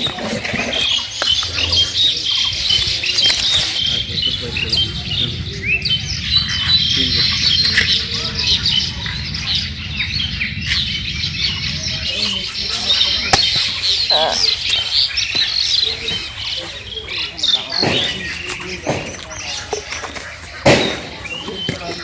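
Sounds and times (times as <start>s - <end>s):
small birds chirping: 0.0s - 22.0s
low rumble: 3.8s - 16.5s.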